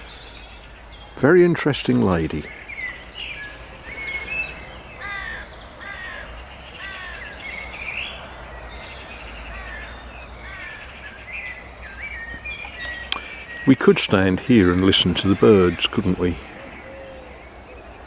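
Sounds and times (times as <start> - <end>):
high bird chirps: 0.0 - 18.0
bird calls falling in pitch: 2.0 - 8.2, 9.5 - 17.8.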